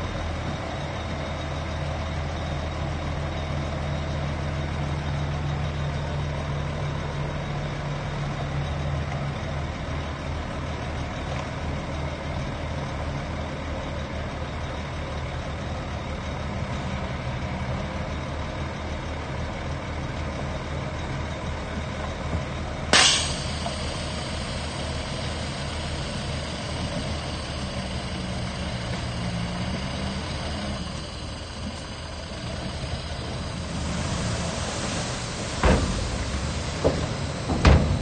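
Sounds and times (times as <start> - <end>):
heavy diesel machinery running: 0.0 - 38.0
sharp hiss: 23.0 - 38.0.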